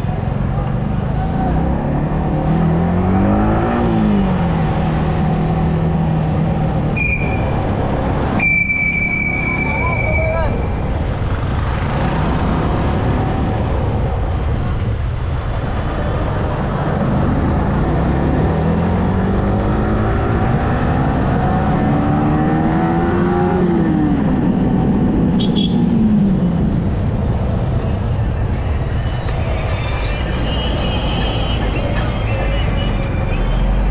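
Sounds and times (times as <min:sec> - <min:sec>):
wind and road rumble: 0:00.0 - 0:33.9.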